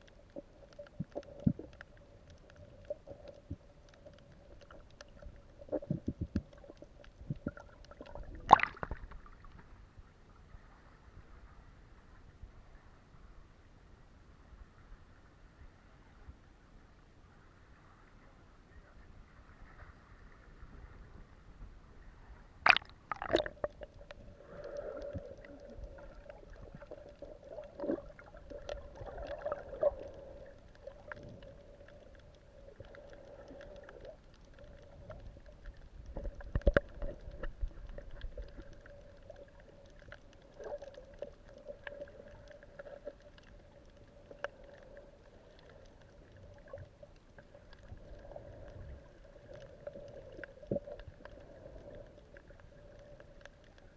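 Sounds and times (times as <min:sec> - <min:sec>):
clicks and bubbly gurgles: 0:00.0 - 0:09.8, 0:22.6 - 0:53.9
underwater hum: 0:00.0 - 0:16.2, 0:19.6 - 0:53.9
knocks and splashes: 0:22.7 - 0:23.8.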